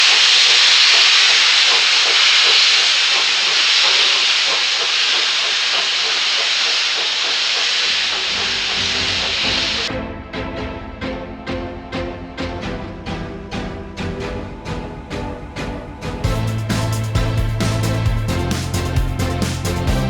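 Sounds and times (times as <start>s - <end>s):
steam venting hiss: 0.0s - 9.9s
music with a regular beat: 16.2s - 20.0s.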